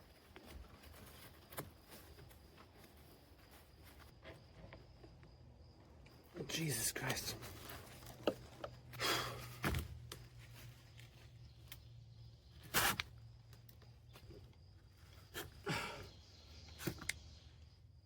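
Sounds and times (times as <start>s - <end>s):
breathy effort sounds: 8.9s - 9.6s, 15.3s - 16.2s.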